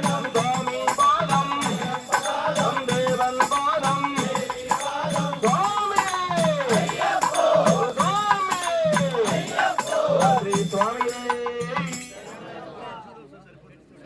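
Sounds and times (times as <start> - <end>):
percussion rhythm: 0.0 - 12.5
voices singing devotional song: 0.0 - 13.2.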